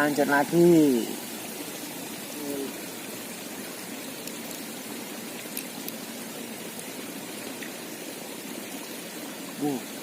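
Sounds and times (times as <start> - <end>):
stream water flowing: 0.0 - 10.0
faint ticks: 5.4 - 6.0.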